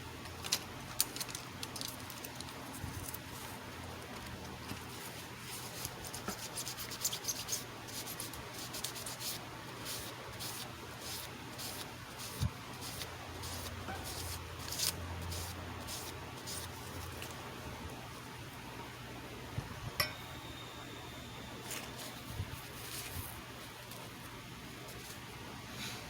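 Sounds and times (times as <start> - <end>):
steady low hum: 9.4 - 26.0.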